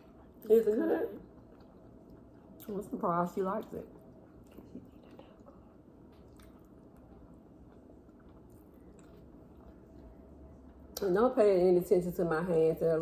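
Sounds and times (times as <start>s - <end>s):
person chewing: 1.2s - 2.8s, 4.1s - 11.0s.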